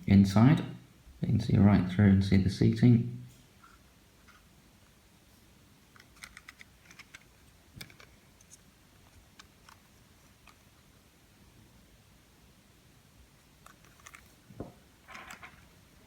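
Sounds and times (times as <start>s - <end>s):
plastic model coach clicking: 6.0s - 10.6s, 13.6s - 14.3s.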